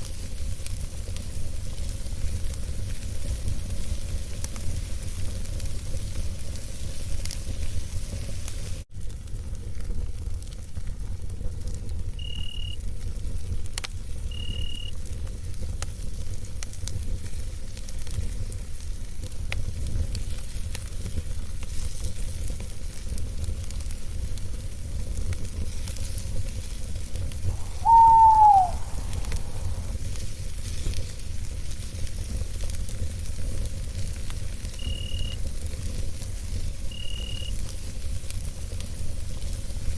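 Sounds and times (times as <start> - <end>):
campfire roaring and crackling: 0.0 - 39.9
cricket chirping: 12.2 - 12.8, 14.3 - 14.9, 27.6 - 29.9, 34.8 - 35.4, 36.9 - 37.5
owl hooting: 27.5 - 30.0.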